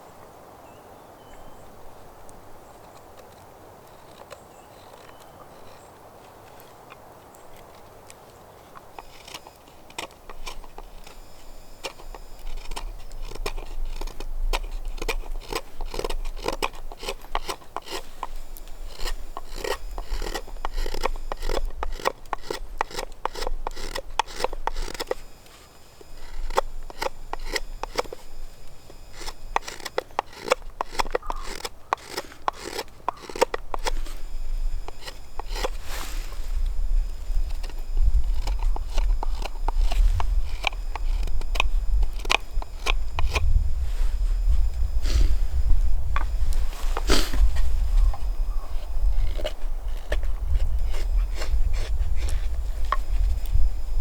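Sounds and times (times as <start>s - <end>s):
hand tool rasping on wood: 8.6s - 43.6s, 46.2s - 53.1s.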